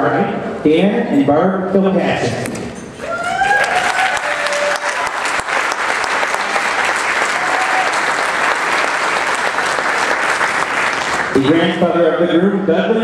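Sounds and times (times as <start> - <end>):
person cheering: 3.0 - 5.2, 7.2 - 8.2
people clapping: 3.0 - 11.8.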